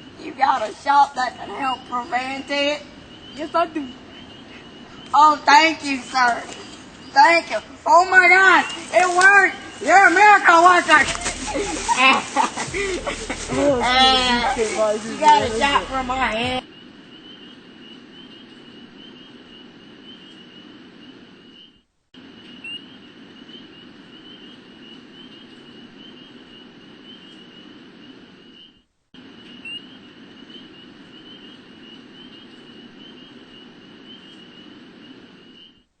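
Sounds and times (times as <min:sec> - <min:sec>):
low hiss: 0:00.0 - 0:16.6.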